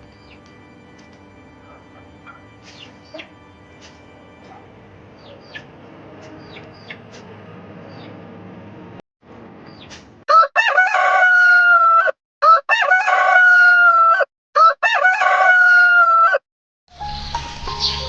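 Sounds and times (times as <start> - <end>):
rooster crowing: 10.3 - 16.4.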